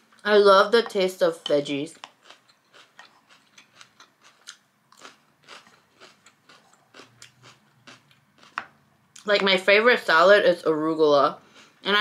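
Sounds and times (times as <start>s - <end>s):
person chewing food: 1.9s - 9.2s, 11.4s - 11.8s.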